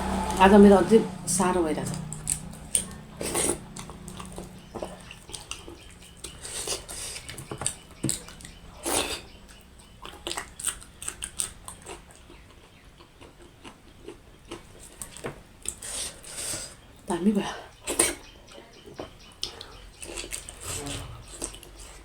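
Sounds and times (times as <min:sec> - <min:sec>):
wet chewing and mouth smacks: 0:01.9 - 0:16.2, 0:19.0 - 0:20.7.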